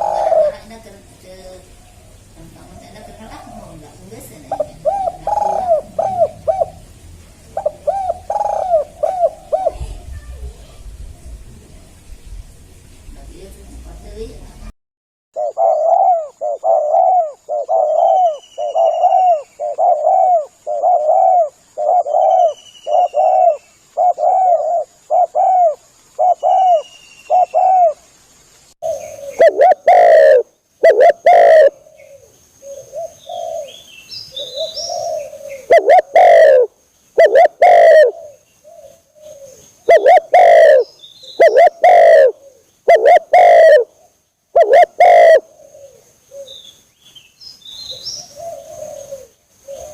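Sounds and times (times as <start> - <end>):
dove cooing: 0.0 - 11.9, 15.4 - 28.0, 28.8 - 46.7, 47.9 - 49.9
faint high bird chirps: 15.4 - 28.0, 28.8 - 43.9.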